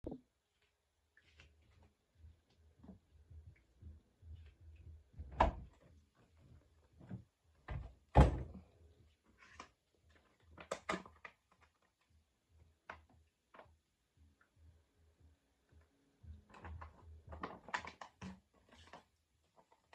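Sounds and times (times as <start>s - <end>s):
washing machine door knocks and clunks: 5.2s - 5.7s, 7.7s - 8.6s.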